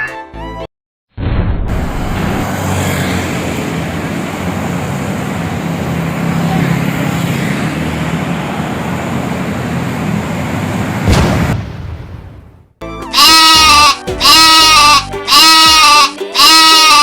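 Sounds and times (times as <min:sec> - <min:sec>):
tyre and road noise: 0:01.7 - 0:16.1
loud rush of passing vehicle: 0:01.8 - 0:12.8
truck engine rumble: 0:01.9 - 0:12.8.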